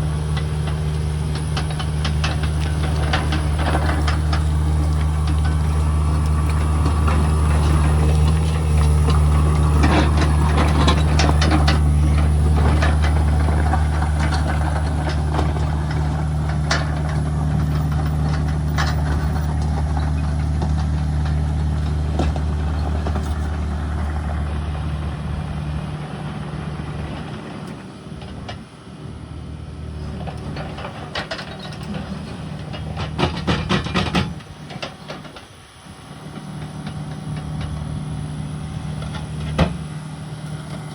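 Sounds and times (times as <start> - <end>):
metal clanks and rattles: 0.0 - 24.5, 30.0 - 37.9
diesel engine running: 0.0 - 40.9.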